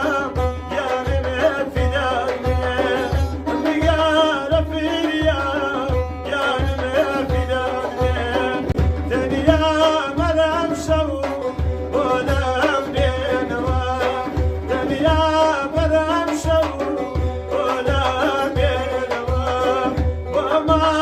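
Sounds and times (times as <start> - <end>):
low drum beat: 0.0 - 21.0.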